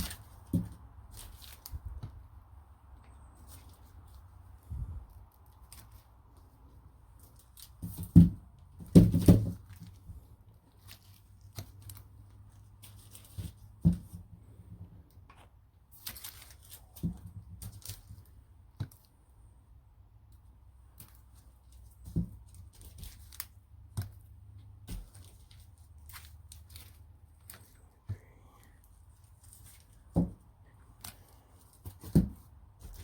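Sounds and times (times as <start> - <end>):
paper and cardboard rustling: 0.0 - 14.8, 15.4 - 19.5, 20.9 - 33.0
dull knocks and thumps: 7.6 - 10.4, 13.2 - 14.9, 21.8 - 23.2, 29.8 - 30.7, 31.7 - 33.0.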